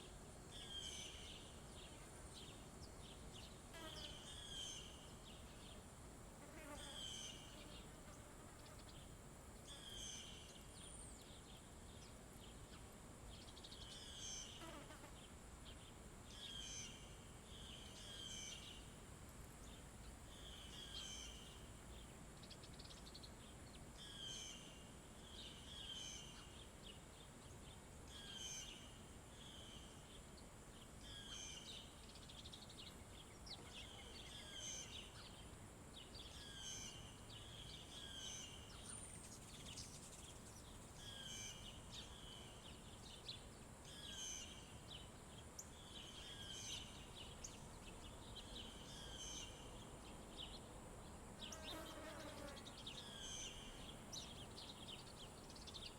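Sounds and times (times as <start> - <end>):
faint outdoor background: 0.0 - 55.9
songbird singing: 0.0 - 55.9.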